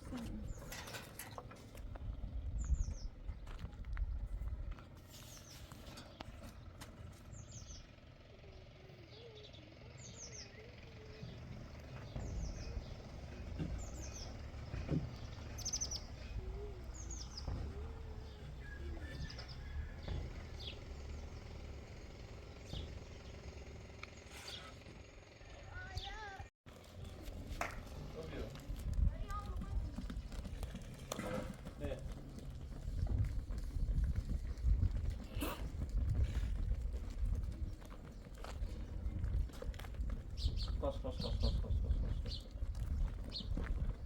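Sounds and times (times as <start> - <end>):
small bird chirping: 7.3 - 19.7.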